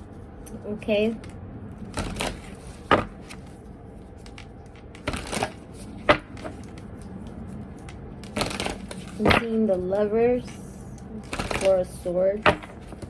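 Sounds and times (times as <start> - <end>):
cards shuffling: 0.5 - 13.0
cards slapping: 1.9 - 9.6, 11.2 - 11.8, 12.4 - 13.0.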